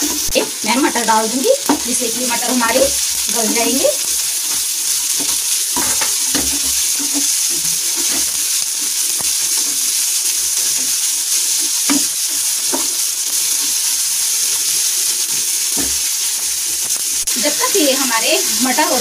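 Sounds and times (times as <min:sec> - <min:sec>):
vegetables sizzling in oil: 0:00.0 - 0:19.0
wooden spatula scraping a pan: 0:01.6 - 0:08.6.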